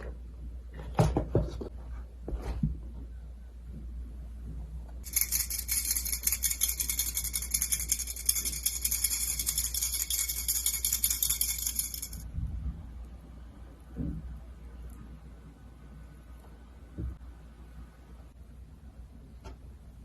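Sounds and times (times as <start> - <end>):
utensil rattling against container: 5.0 - 12.2.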